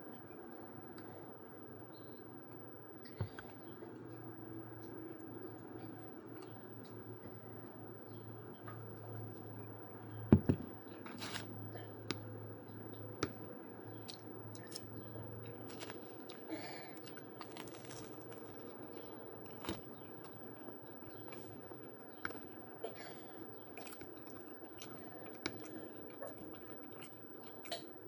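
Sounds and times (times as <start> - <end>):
faint low hum: 0.0 - 28.0
person chewing food: 13.9 - 22.6, 23.5 - 28.0.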